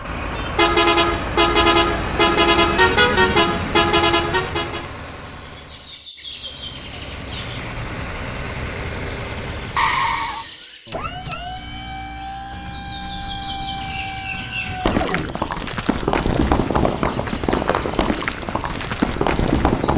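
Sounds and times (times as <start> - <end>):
vehicle horn honking a tune: 9.8 - 10.9.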